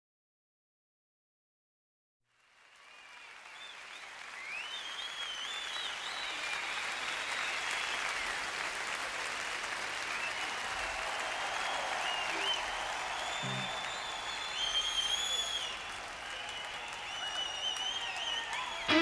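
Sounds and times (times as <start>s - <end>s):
crowd applause and cheering: 2.4s - 19.0s
wavering whistles: 12.0s - 15.8s.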